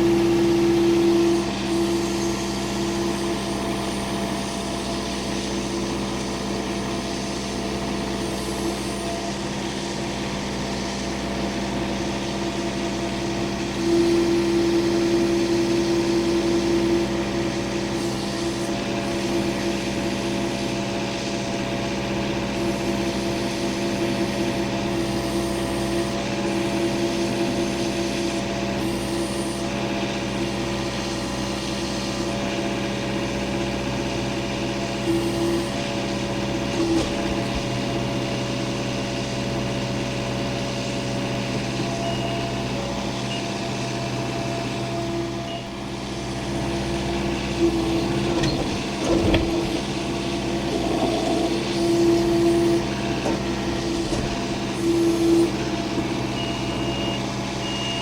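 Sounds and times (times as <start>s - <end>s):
machine engine running: 41.2s - 57.6s.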